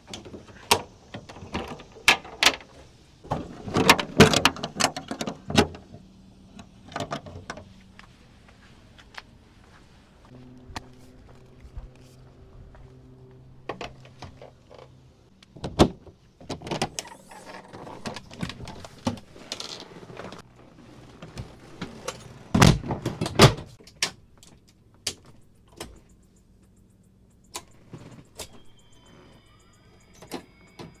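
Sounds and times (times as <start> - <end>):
faint high gliding tones: 26.0 - 31.0.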